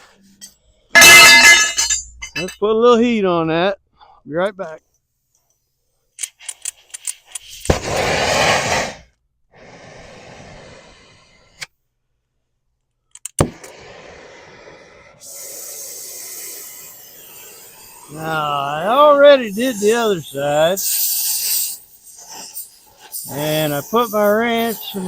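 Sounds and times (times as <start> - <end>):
torch gas and flame hissing: 7.5 - 11.7, 13.4 - 25.0.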